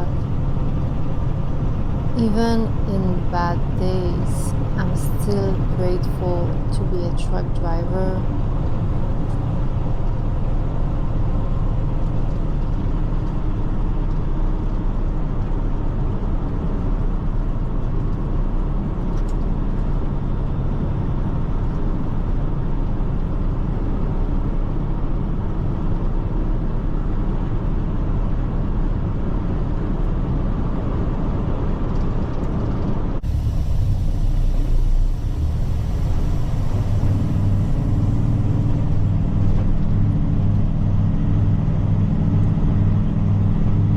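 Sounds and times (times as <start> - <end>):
truck engine hum: 0.0 - 13.3, 32.9 - 43.9.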